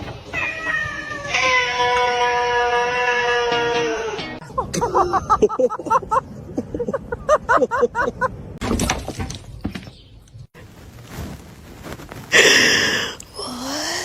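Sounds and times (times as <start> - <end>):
clatter of something breaking: 8.6 - 9.9.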